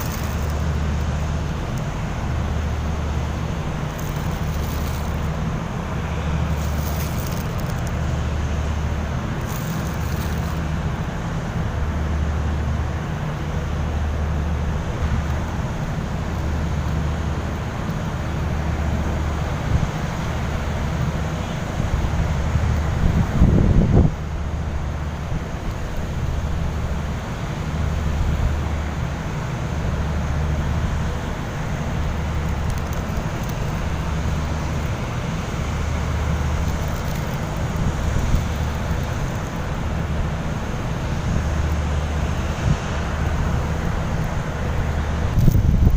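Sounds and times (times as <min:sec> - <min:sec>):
low throbbing engine rumble: 0:00.0 - 0:45.9
wind noise on microphone: 0:14.8 - 0:29.3, 0:29.9 - 0:45.9.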